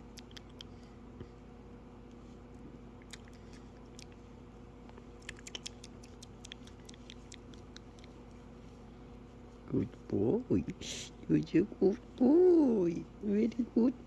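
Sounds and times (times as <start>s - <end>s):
parrot beak clicking and tapping: 5.2s - 8.2s.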